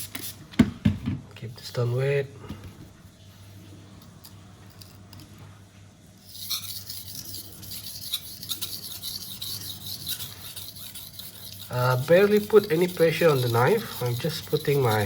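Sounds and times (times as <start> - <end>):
knife scraping on whetstone: 6.2 - 15.0.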